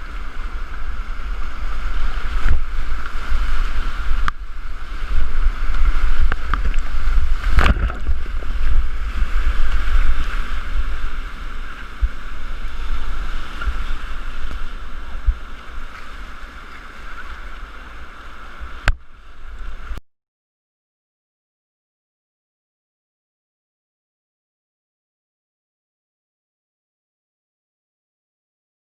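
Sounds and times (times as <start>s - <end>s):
rushing river whitewater: 0.0s - 20.0s
wind buffeting microphone: 0.0s - 20.0s.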